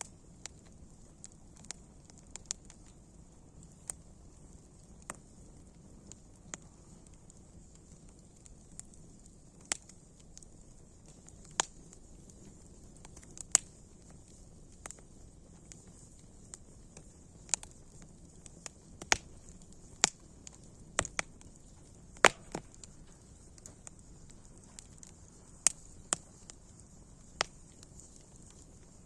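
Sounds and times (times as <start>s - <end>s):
faint steady hiss: 0.0s - 29.0s
wood fire crackling: 0.0s - 29.0s.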